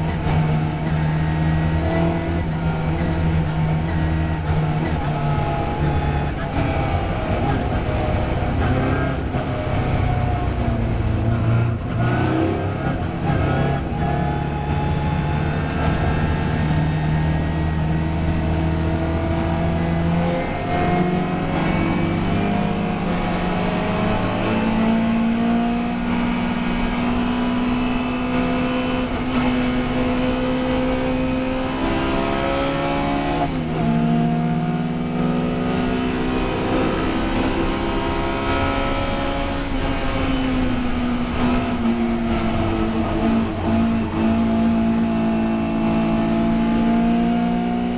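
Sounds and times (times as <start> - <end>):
racing car engine accelerating: 0.0 - 47.9.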